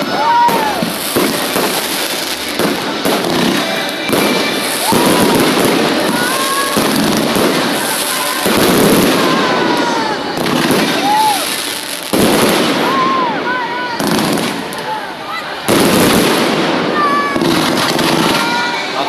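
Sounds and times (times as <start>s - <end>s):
fireworks crackling: 0.0s - 19.0s
fireworks whistling: 0.0s - 19.0s.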